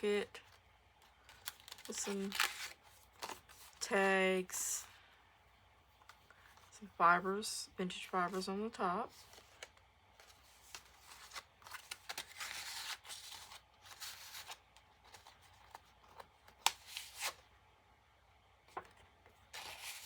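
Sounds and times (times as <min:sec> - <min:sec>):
paper tags rustling and crinkling: 0:00.4 - 0:04.2, 0:07.9 - 0:17.4.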